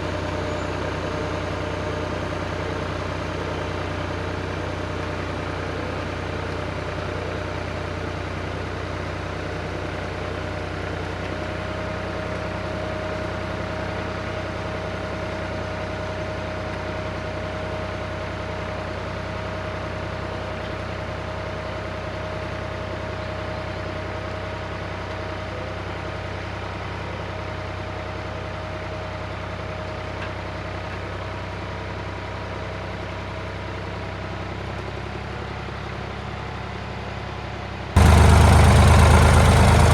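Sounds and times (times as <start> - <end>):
tractor engine droning: 38.0 - 39.9.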